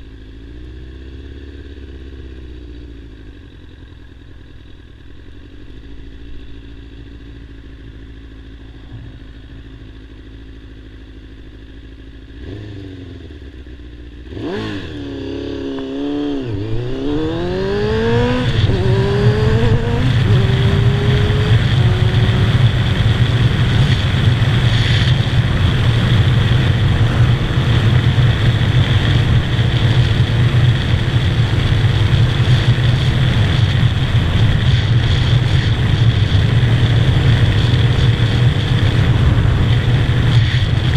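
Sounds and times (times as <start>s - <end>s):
motorcycle engine accelerating: 0.0s - 40.9s
wind rush at highway speed: 14.3s - 40.9s.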